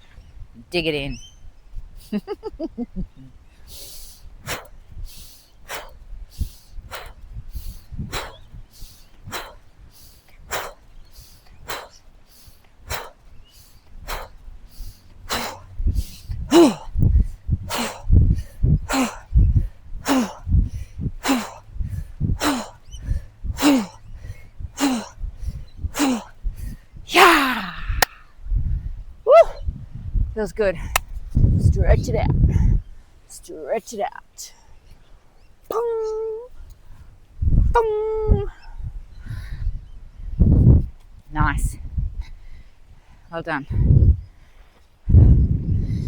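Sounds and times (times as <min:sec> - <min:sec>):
woman grunting: 0:15.3 - 0:15.6, 0:16.5 - 0:16.9, 0:18.9 - 0:19.2, 0:20.1 - 0:20.4, 0:21.2 - 0:21.6, 0:22.4 - 0:22.8, 0:23.6 - 0:24.0, 0:24.8 - 0:25.1, 0:26.0 - 0:26.3, 0:27.1 - 0:28.2
woman exhaling forcefully: 0:16.5 - 0:17.0, 0:23.6 - 0:24.0, 0:27.1 - 0:28.3.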